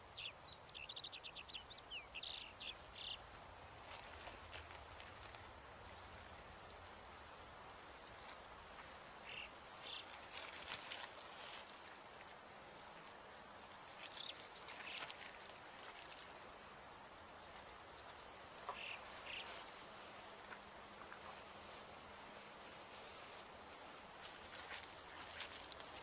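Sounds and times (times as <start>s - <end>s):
soft rustles: 3.7s - 16.7s, 18.4s - 26.0s.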